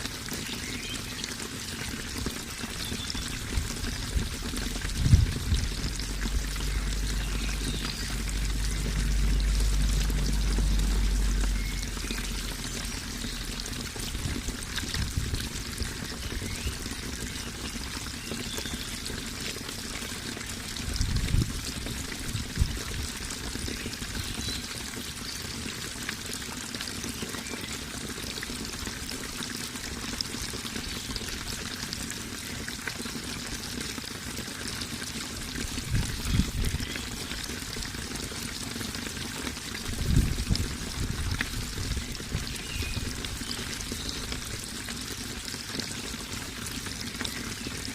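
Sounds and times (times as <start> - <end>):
water pouring and splashing: 0.0 - 47.9
brief low rumbles: 4.9 - 14.2.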